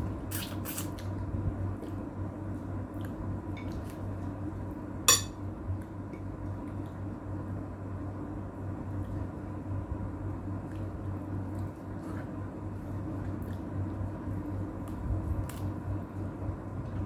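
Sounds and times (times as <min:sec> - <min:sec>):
steady low hum: 0:01.0 - 0:17.0
utensils clinking on a dish: 0:05.1 - 0:05.4.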